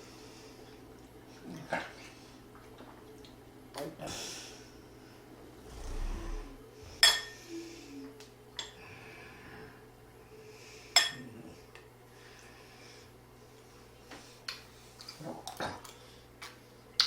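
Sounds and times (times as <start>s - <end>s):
cutlery clinking against dishes: 11.0s - 11.3s.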